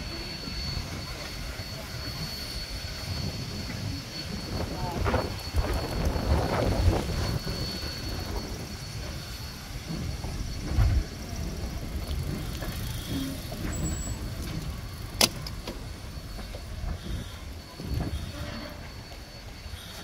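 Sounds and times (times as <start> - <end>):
steam train rumbling: 0.0 - 20.0
wind on microphone: 3.2 - 9.1.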